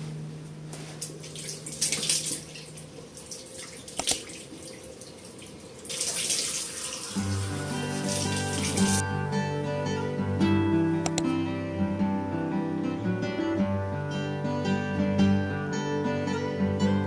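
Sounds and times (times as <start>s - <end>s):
tap water splashing into sink: 1.3s - 7.4s.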